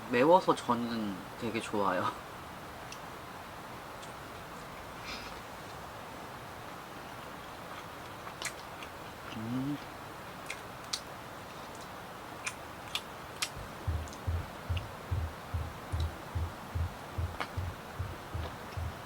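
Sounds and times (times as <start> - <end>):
chewing food: 7.2 - 11.0, 11.6 - 14.8
sharp ticks: 13.4 - 19.0.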